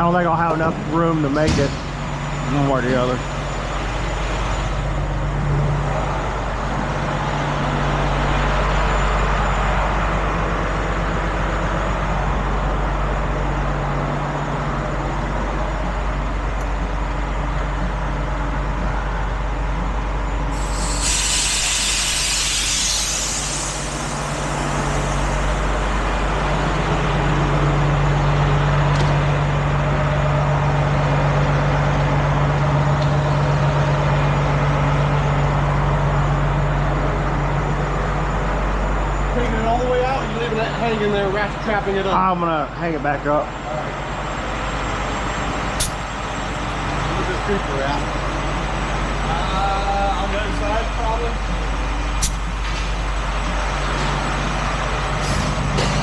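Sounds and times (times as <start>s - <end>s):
truck engine running: 0.0s - 39.5s
air brake hiss: 20.5s - 27.4s, 52.2s - 52.9s, 55.1s - 55.8s.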